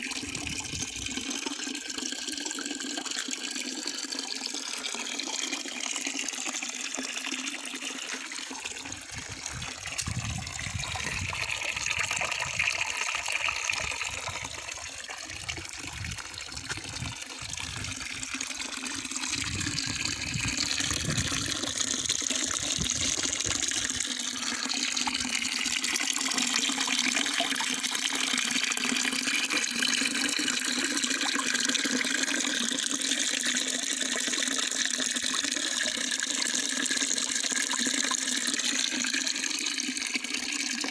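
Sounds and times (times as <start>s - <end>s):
running water rushing: 7.1s - 29.6s.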